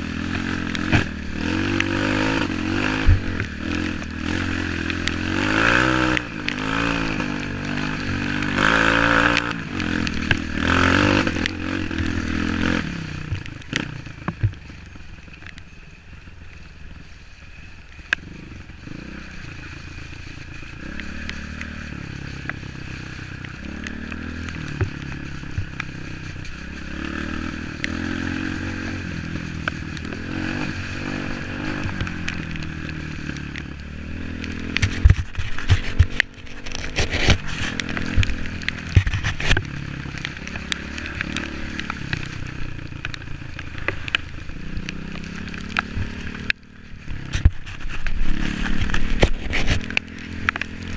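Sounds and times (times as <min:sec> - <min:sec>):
motorcycle engine revving: 0:00.0 - 0:15.7, 0:16.9 - 0:50.9
clicks and scrapes: 0:34.3 - 0:42.3, 0:45.1 - 0:50.9.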